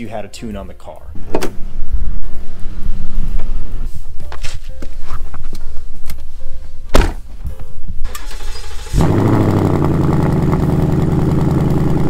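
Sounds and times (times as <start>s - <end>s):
loud thump: 6.9s - 7.2s
car engine starting and idling: 8.0s - 12.0s.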